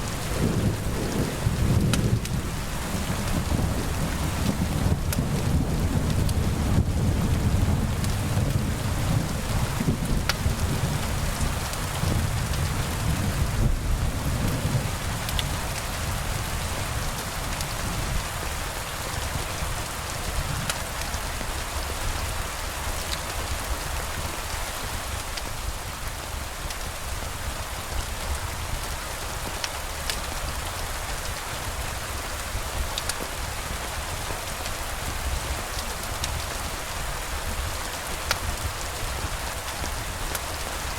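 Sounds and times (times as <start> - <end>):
thunder rumbling: 0.0 - 17.2
rain hissing: 0.0 - 40.9
raindrop ticks: 0.1 - 9.2, 9.8 - 13.3, 15.2 - 15.9, 25.2 - 25.6, 29.4 - 31.4, 32.3 - 40.9.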